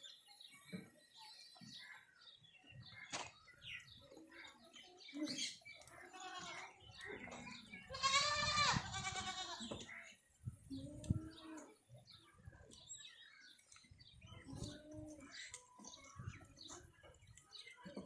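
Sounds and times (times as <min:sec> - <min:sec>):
goats bleating: 0:06.0 - 0:06.7, 0:07.8 - 0:09.8.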